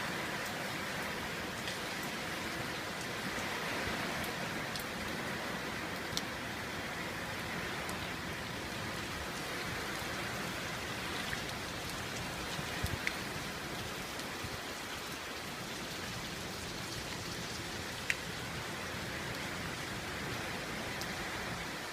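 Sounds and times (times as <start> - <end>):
heavy rain pouring: 0.0 - 21.9
sharp drip-like ticks: 4.2 - 5.1, 5.9 - 6.4, 9.8 - 14.4, 15.0 - 21.3.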